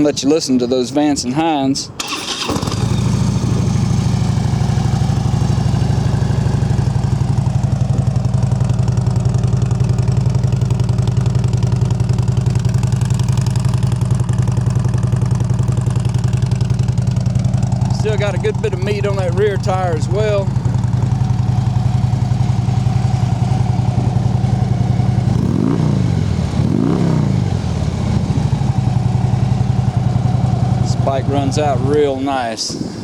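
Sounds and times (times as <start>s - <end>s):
motorcycle engine starting and idling: 2.0s - 33.0s.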